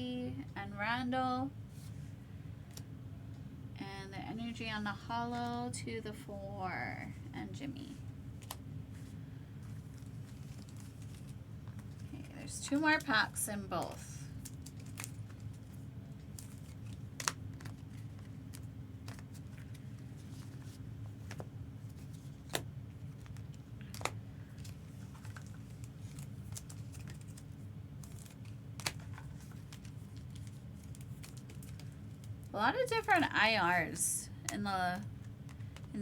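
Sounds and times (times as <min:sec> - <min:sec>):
steady low hum: 0:00.0 - 0:36.0
card packs crinkling: 0:09.6 - 0:32.5.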